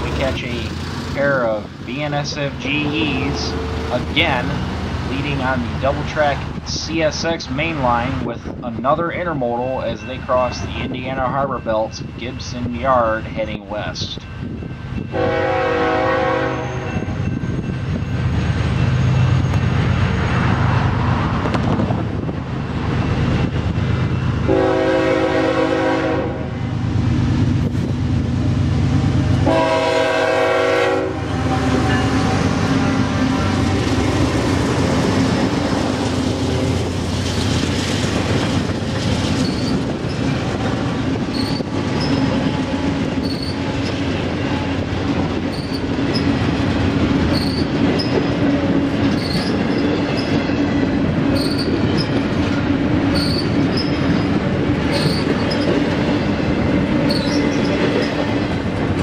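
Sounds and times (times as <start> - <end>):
freight cars clattering on rails: 0.0 - 15.1, 31.3 - 59.0
locomotive engines rumbling: 0.0 - 59.0
locomotive horn: 15.1 - 17.2, 24.4 - 26.6, 29.4 - 34.2
faint wheel squeal: 39.4 - 39.8, 41.3 - 42.4, 43.2 - 44.0, 45.5 - 46.3, 47.3 - 48.2, 49.2 - 50.4, 51.3 - 52.2, 53.1 - 54.3, 54.9 - 55.8, 57.1 - 58.2.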